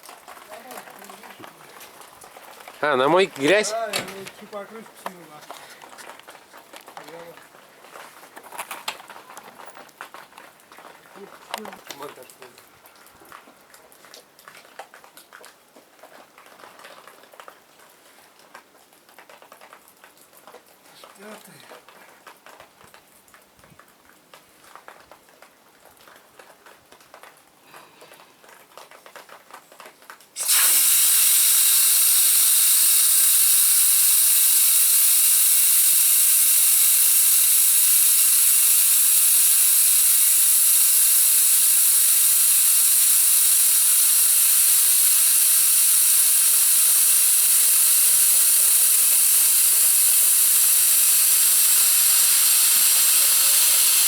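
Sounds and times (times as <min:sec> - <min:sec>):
pressure washer spraying: 0:30.4 - 0:54.0.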